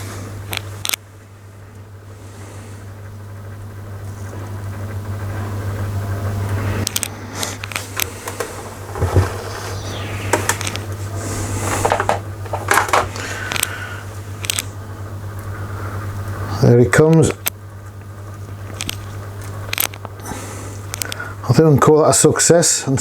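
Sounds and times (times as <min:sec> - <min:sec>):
laminator motor hum: 0:00.0 - 0:21.5.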